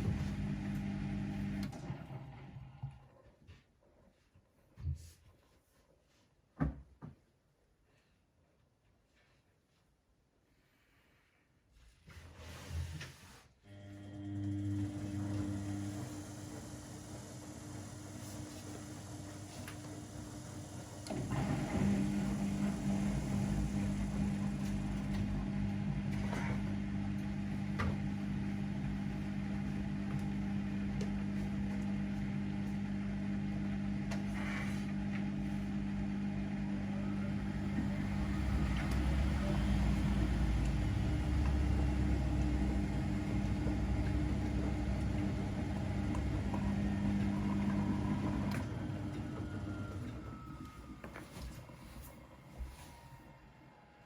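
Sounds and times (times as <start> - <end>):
laundry machine motor humming: 0.0 - 2.8, 13.7 - 53.4.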